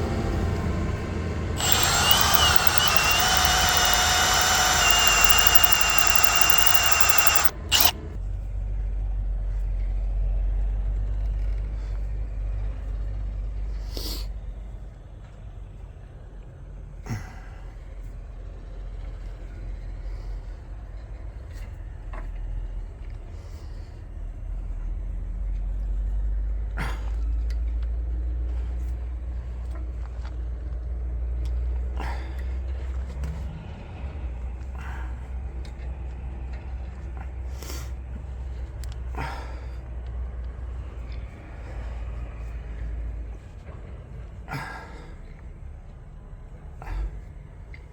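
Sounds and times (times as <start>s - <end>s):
light clicks: 1.6s - 7.9s
power tool whining: 1.6s - 7.9s.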